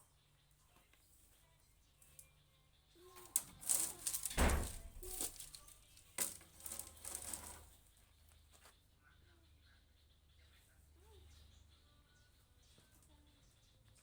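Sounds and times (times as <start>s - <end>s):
handling clicks and rattling: 3.2s - 7.6s
crinkling: 3.2s - 7.8s.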